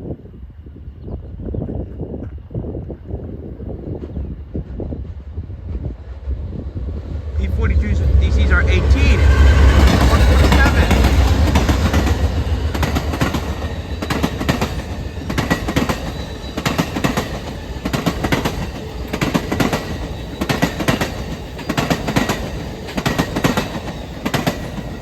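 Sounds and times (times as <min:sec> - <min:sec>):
train rumble: 0:00.0 - 0:25.0
wheels clacking over rail joints: 0:09.8 - 0:25.0.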